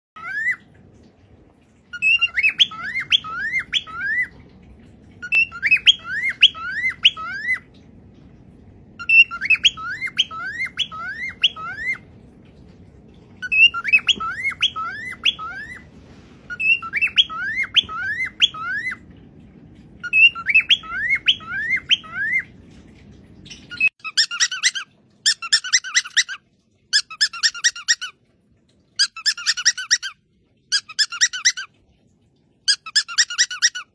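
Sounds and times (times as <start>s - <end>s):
parrot whistling calls: 0.2s - 0.6s, 1.9s - 4.3s, 5.2s - 7.7s, 9.0s - 12.0s, 13.4s - 15.9s, 16.5s - 19.0s, 20.0s - 22.5s, 23.5s - 28.1s, 29.0s - 31.7s, 32.7s - 33.9s
low steady hum: 0.2s - 33.9s
parrot chattering calls: 1.9s - 4.3s, 5.2s - 7.6s, 9.0s - 12.0s, 13.4s - 15.8s, 16.5s - 19.0s, 23.6s - 28.1s, 29.0s - 31.7s, 32.7s - 33.9s.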